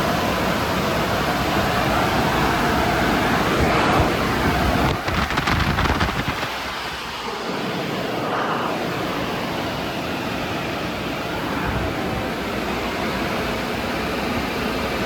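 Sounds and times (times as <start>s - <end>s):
car wash machinery rushing: 0.0s - 15.0s
rapid flapping pulse: 3.4s - 7.2s.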